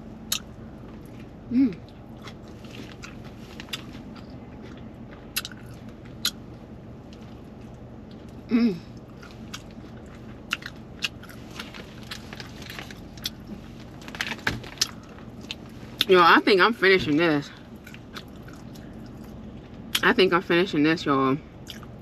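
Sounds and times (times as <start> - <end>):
person biting and chewing: 0.2 - 6.5, 9.0 - 13.6.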